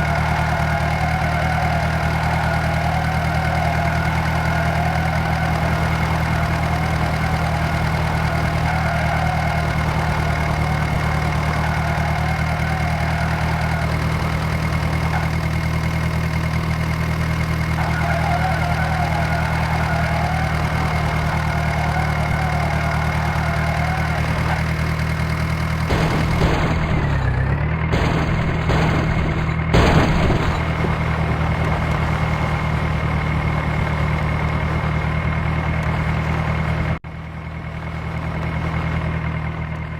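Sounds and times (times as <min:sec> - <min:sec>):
tractor diesel engine running: 0:00.0 - 0:39.9
sharp knocks: 0:25.8 - 0:32.7.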